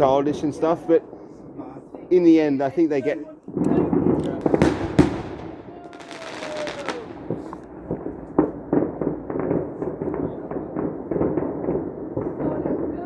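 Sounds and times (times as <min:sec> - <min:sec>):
fireworks crackling: 0:00.0 - 0:13.0
fireworks bangs and pops: 0:03.0 - 0:13.0.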